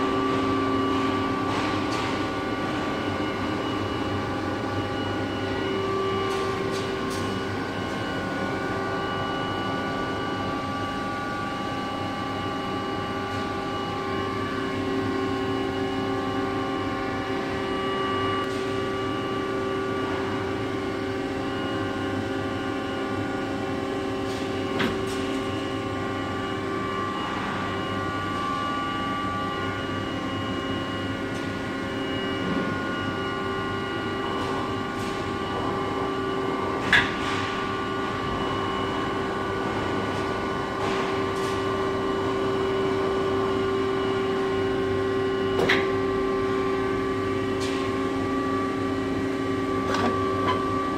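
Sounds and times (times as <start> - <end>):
lathe machine whining drone: 43.2 - 50.9.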